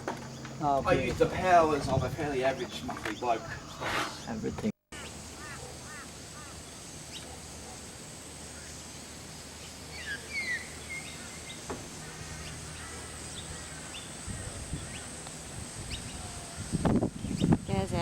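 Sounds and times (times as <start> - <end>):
high insect drone: 0.0 - 18.0
bird chirping: 9.6 - 18.0.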